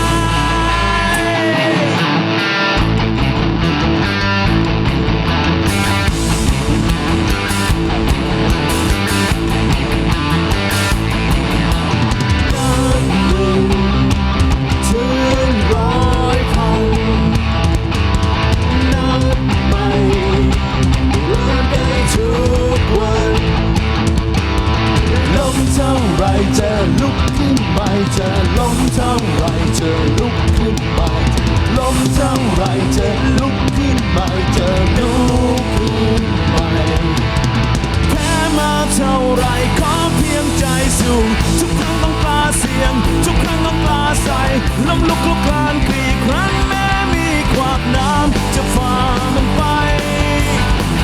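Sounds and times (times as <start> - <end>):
lead guitar bending notes: 0.0 - 25.2
rock band playing: 0.0 - 51.0.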